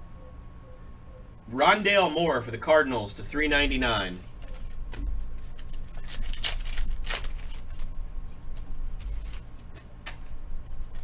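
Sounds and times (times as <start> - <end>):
card wrappers rustling: 4.1 - 11.0.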